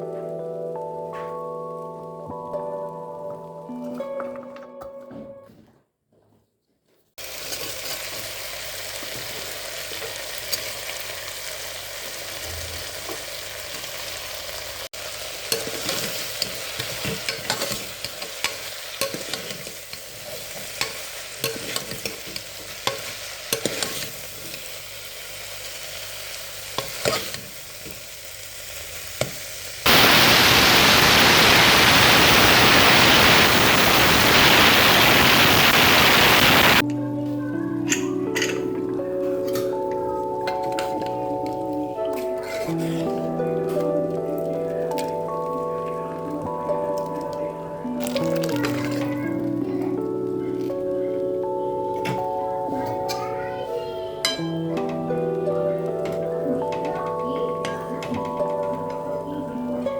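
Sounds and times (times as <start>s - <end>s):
food sizzling in hot oil: 7.2s - 36.8s, 47.9s - 49.4s
loud even hiss: 29.9s - 36.8s.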